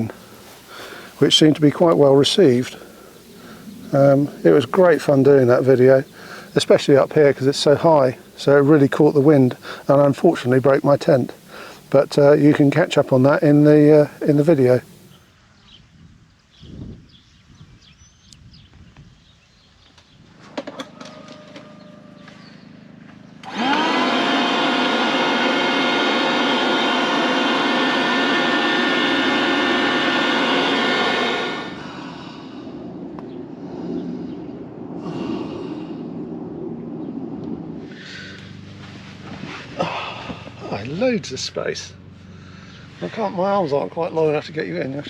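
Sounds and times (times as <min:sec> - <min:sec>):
small electric motor spinning: 0:23.4 - 0:31.8.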